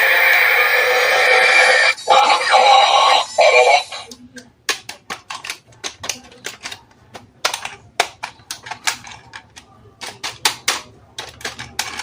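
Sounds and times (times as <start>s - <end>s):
plastic toy parts clicking: 4.1s - 12.0s.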